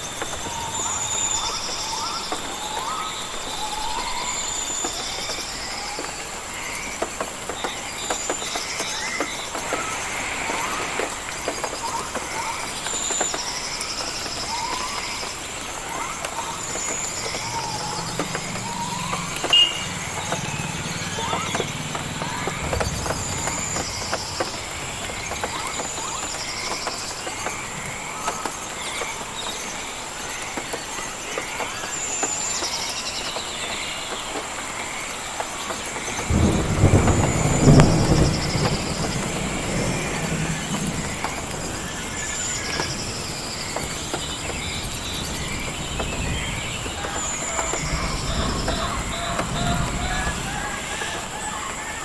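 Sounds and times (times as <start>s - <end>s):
high insect drone: 0.0s - 33.2s
bird and insect chirps: 0.0s - 52.0s
even hiss: 0.0s - 52.0s.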